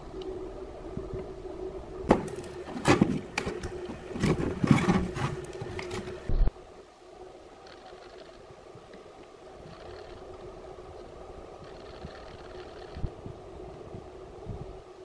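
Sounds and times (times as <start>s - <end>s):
steady hum: 0.0s - 15.0s
sharp knocks and scraping: 2.1s - 6.3s.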